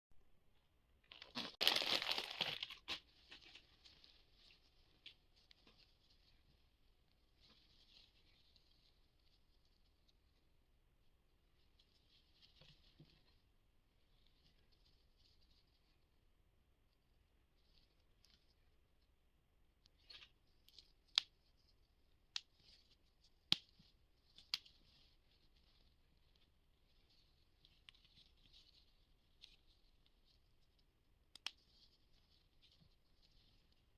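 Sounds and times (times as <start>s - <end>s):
wrapping crinkling: 1.0s - 6.6s
packaging tearing: 1.1s - 3.0s.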